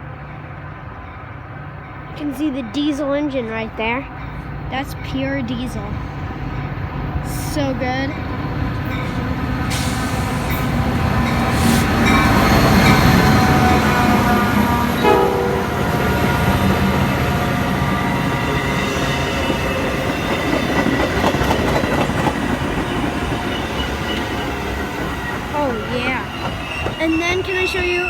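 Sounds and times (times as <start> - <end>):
diesel train running: 0.0 - 28.0
train horn: 9.8 - 21.5.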